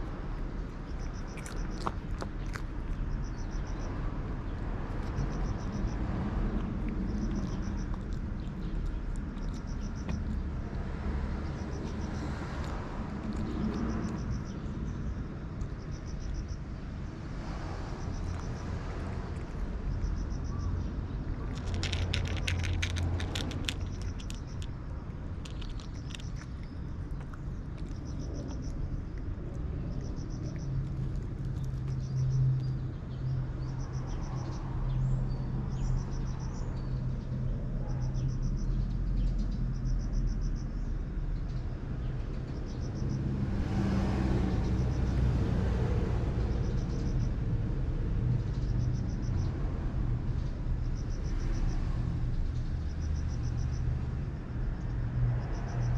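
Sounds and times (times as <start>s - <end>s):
steady low rumble: 17.9s - 35.2s
rapid crisp clicks: 21.5s - 24.8s, 25.4s - 27.9s.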